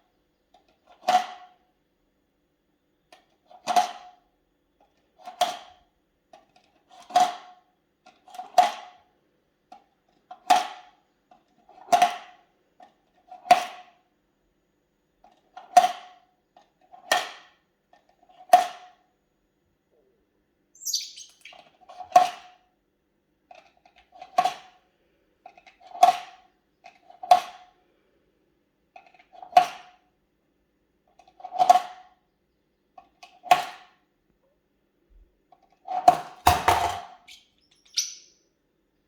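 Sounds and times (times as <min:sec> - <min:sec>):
bird chirp: 0:20.8 - 0:21.7, 0:37.3 - 0:38.5.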